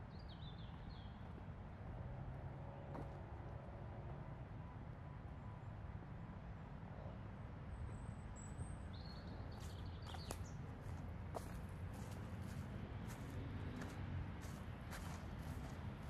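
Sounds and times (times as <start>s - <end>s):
small birds chirping: 8.9s - 11.0s.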